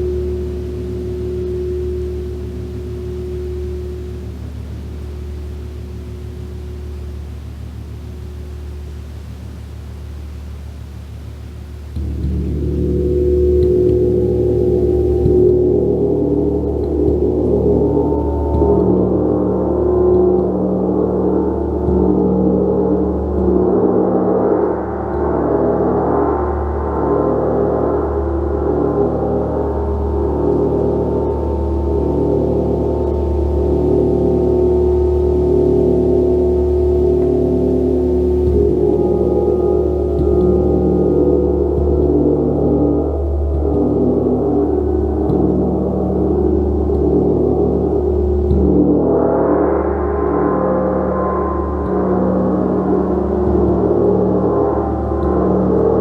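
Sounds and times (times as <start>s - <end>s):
gong ringing: 11.9s - 56.0s.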